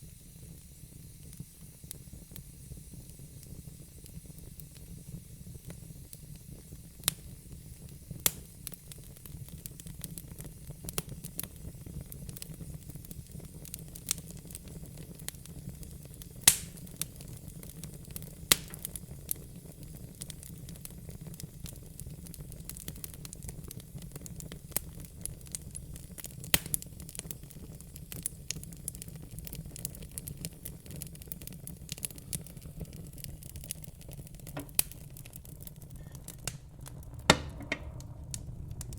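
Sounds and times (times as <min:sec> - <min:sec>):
wood fire crackling and popping: 0:00.0 - 0:38.9
steady low rumble: 0:35.8 - 0:38.9.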